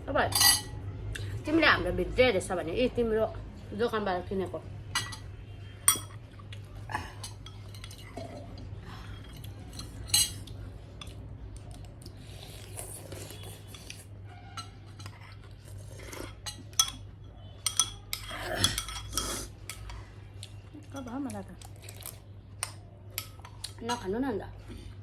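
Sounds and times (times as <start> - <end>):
cutlery clinking on plates: 5.0 - 6.2, 9.1 - 11.2, 16.3 - 19.9.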